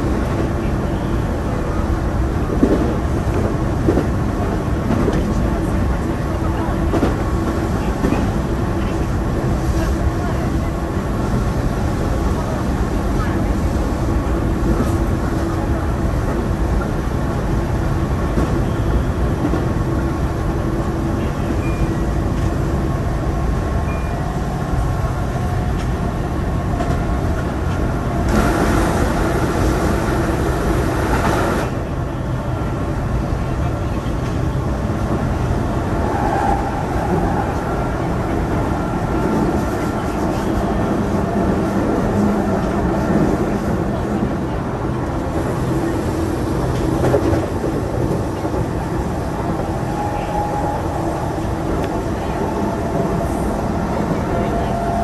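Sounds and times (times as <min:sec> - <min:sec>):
oncoming train rushing past: 0:00.0 - 0:55.0
train wheels rumbling on rail: 0:00.0 - 0:55.0.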